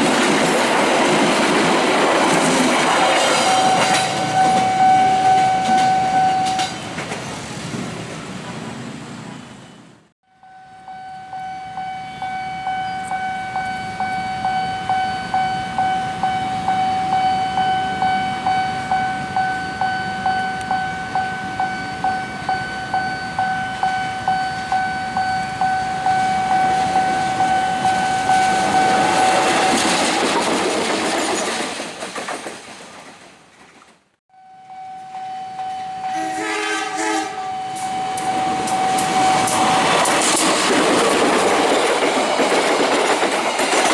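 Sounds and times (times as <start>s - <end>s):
train passing: 0.0s - 34.1s, 34.8s - 43.9s
level crossing bell ringing: 3.1s - 6.8s, 10.3s - 29.9s, 34.4s - 36.4s, 37.5s - 40.0s.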